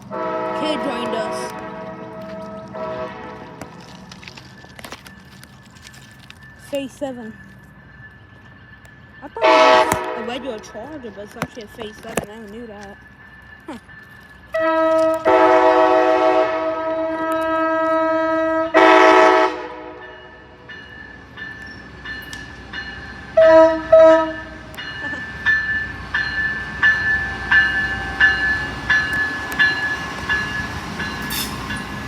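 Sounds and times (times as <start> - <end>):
locomotive air horn blasts: 0.0 - 3.7, 9.4 - 10.4, 14.5 - 20.1, 23.4 - 24.5
rhythmic clicking of passing train: 0.0 - 32.0.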